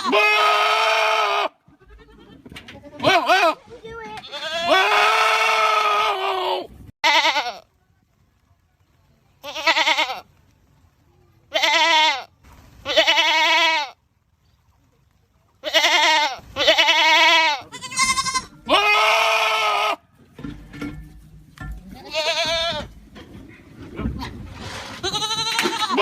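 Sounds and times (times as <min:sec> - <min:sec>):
goat screaming: 0:00.0 - 0:02.4, 0:04.2 - 0:07.6, 0:15.6 - 0:20.0, 0:25.0 - 0:26.0
faint rough sounds: 0:19.9 - 0:26.0.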